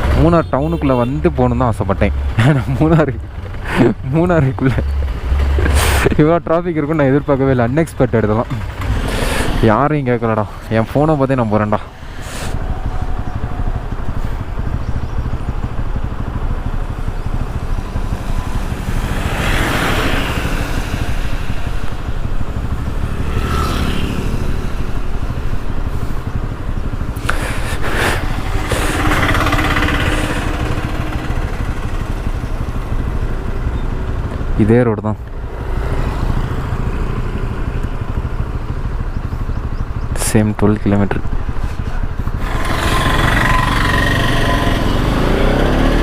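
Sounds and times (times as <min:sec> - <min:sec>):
motorcycle engine running: 0:00.0 - 0:46.0
rushing noise: 0:10.6 - 0:34.5.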